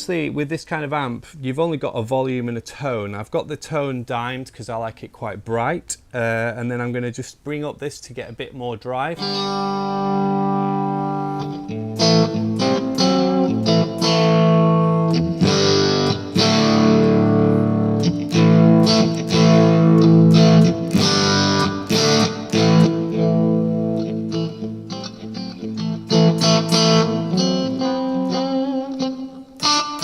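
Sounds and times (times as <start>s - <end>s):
overdriven electric guitar chords: 9.2s - 30.0s.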